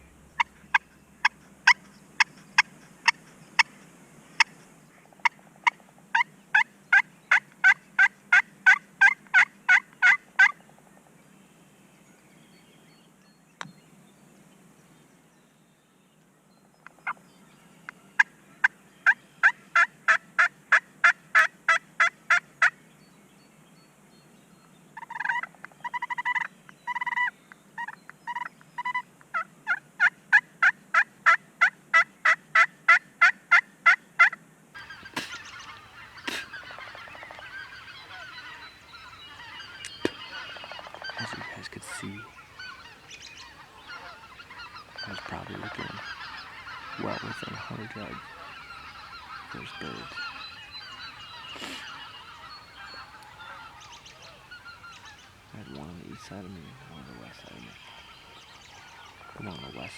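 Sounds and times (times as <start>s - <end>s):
turkey yelping: 34.8s - 59.9s.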